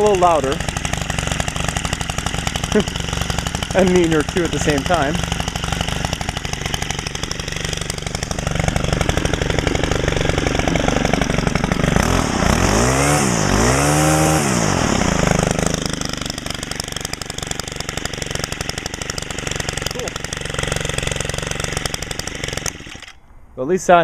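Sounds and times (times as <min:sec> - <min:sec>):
trimmer engine idling and revving: 0:00.0 - 0:23.3.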